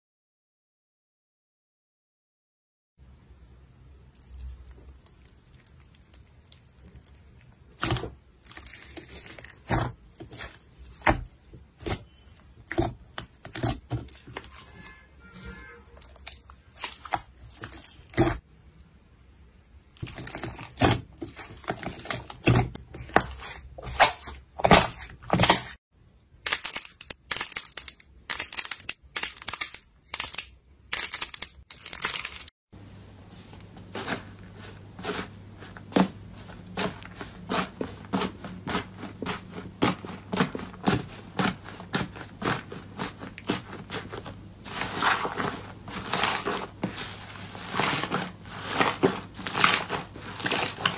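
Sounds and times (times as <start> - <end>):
slime crackling and popping: 4.2 - 14.6, 16.0 - 18.4, 47.7 - 50.9.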